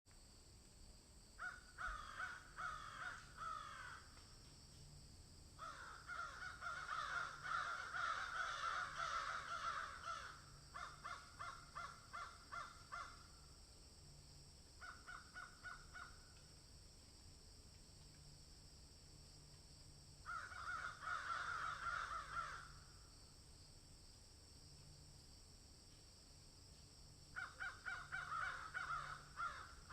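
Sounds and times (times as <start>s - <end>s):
birds harsh repeated calls: 1.4s - 4.1s, 5.6s - 13.4s, 20.2s - 22.8s, 27.3s - 29.9s.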